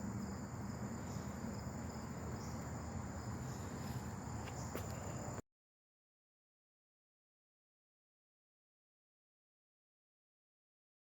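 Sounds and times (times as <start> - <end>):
insects chirring: 0.0 - 5.4.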